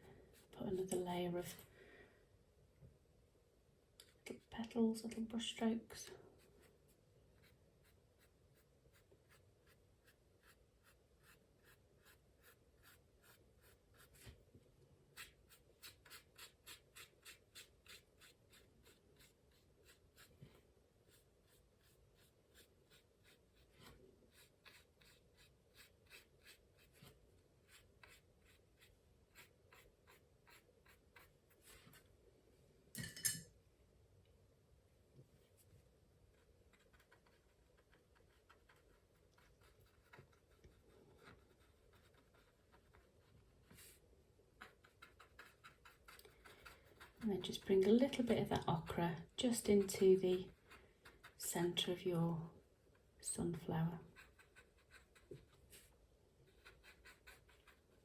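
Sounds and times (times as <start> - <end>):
brush dabbing on paper: 6.4 - 14.3, 15.1 - 20.4, 21.0 - 31.9, 36.3 - 44.0, 54.0 - 55.9, 56.5 - 58.0.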